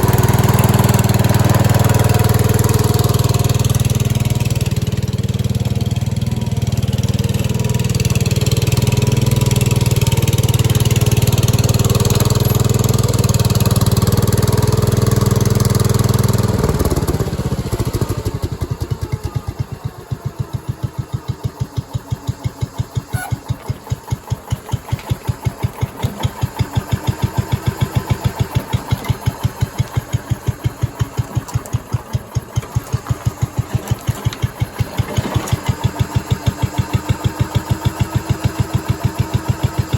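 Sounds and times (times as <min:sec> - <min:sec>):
garden tractor engine: 0:00.0 - 0:39.9.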